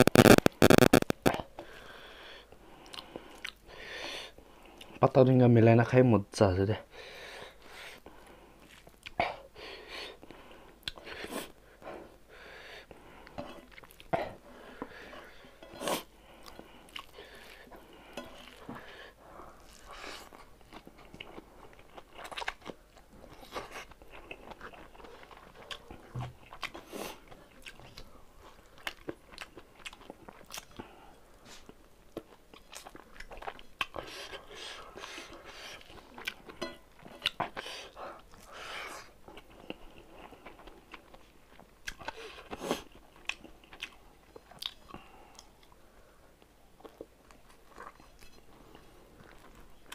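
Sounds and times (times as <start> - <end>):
person chewing: 0.0 - 1.4, 2.8 - 3.6, 13.2 - 15.1, 15.8 - 18.9, 19.6 - 45.8, 46.8 - 49.9.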